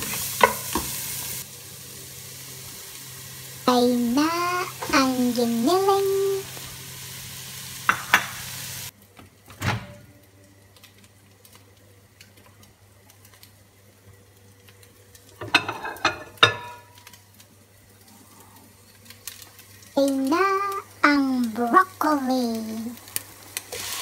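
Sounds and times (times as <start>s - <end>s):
food sizzling in a pot: 0.0s - 24.0s.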